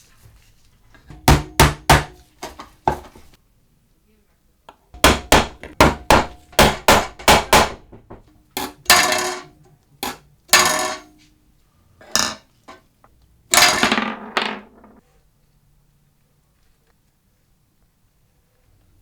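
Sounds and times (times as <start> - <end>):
hammer blows ringing: 5.0 - 9.1.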